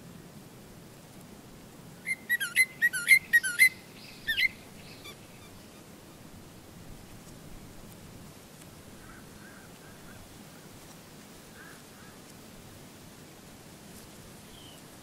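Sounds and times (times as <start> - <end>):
faint steady hiss: 0.0 - 15.0
bird whistling swooping notes: 2.1 - 5.5.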